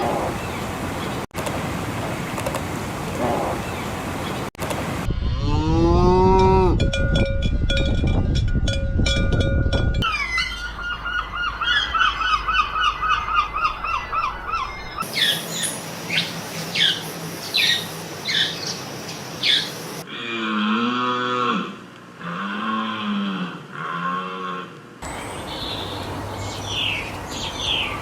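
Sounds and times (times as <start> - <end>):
downward-sweeping bird calls: 10.0 - 20.0, 25.0 - 28.0
high chirping birds: 10.0 - 20.0, 25.0 - 28.0.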